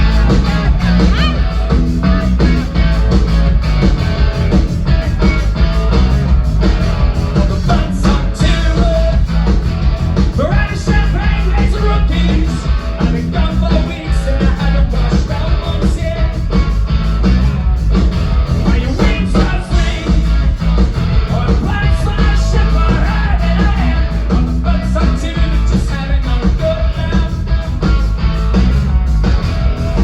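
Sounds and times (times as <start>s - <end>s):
punk rock band playing: 0.0s - 30.0s
person singing: 7.3s - 9.3s, 21.3s - 27.5s.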